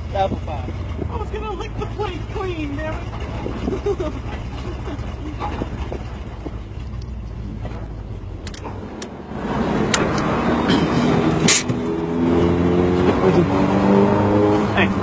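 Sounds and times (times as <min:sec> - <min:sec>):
engine idling with low rumble: 0:00.0 - 0:08.8.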